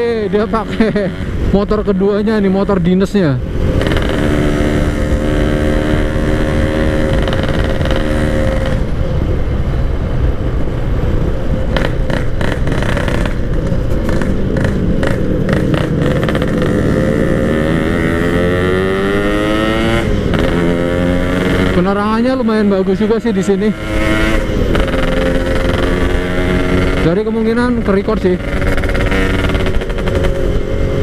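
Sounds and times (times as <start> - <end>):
two-stroke motorcycle engine: 3.8 - 8.9, 11.7 - 31.0.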